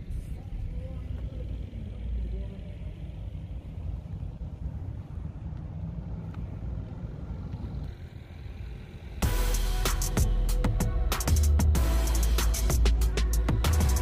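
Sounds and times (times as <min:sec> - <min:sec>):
rumble of vehicles: 0:00.0 - 0:14.0
electronic music with hard beat: 0:09.2 - 0:14.0.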